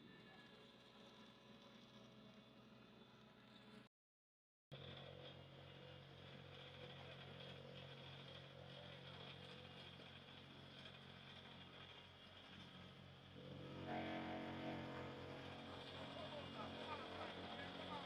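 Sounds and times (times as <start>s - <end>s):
heavy engine drone: 4.7s - 18.0s.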